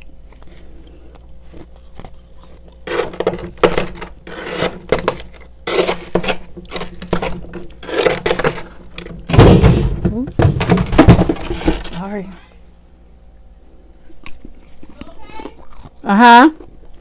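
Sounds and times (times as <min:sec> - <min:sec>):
freezer frost crunching: 0:00.0 - 0:12.5, 0:14.0 - 0:17.0.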